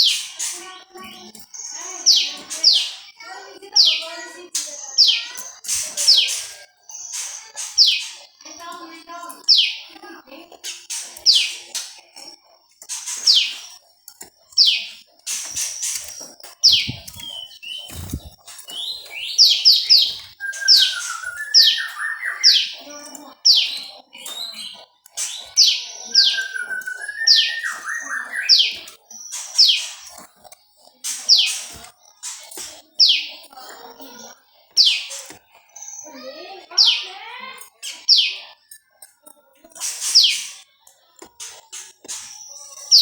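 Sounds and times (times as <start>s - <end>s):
bird twittering: 0.0s - 43.0s
bird singing high sliding notes: 14.6s - 22.8s, 25.5s - 30.0s.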